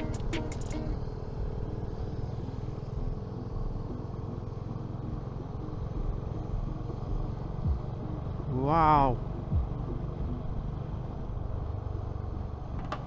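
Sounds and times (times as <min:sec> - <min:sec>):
sharp ticks: 0:00.0 - 0:00.9
motorcycle engine cruising: 0:00.0 - 0:13.0
road noise: 0:00.0 - 0:13.0.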